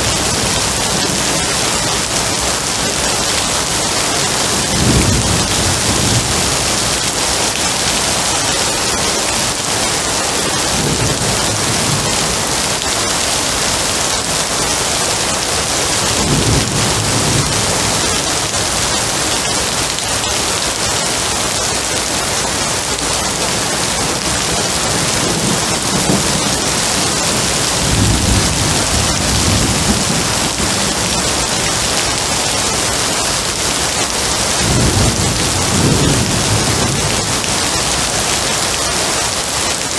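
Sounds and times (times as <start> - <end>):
heavy rain hissing: 0.0 - 39.9
distant thunder rolling: 25.0 - 31.3.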